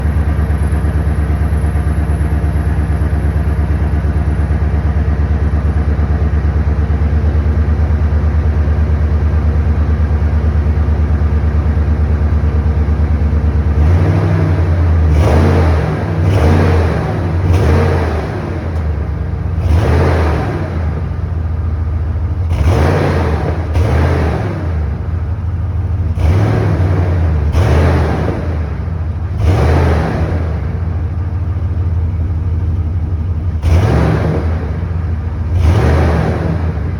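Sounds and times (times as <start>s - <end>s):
engine exhaust idling: 0.0s - 36.9s
engine revving: 13.6s - 21.4s, 22.4s - 31.3s, 33.5s - 36.9s.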